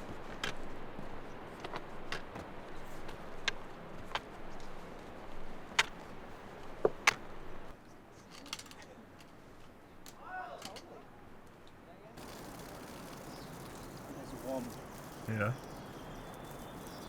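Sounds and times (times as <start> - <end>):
boots or poles clicking on stone: 12.2 - 17.0
steady hiss: 12.2 - 17.0.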